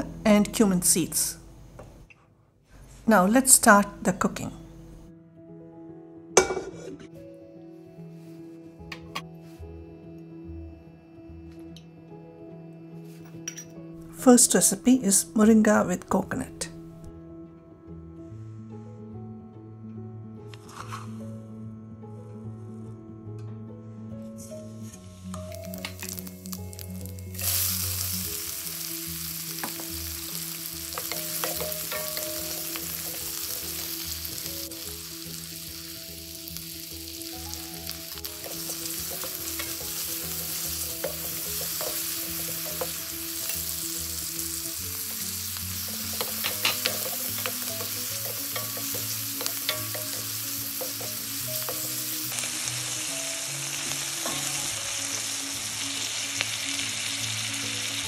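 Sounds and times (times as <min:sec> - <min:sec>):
wooden spoon scraping a pan: 0:20.6 - 0:21.2
onion sizzling in hot oil: 0:25.1 - 0:58.0.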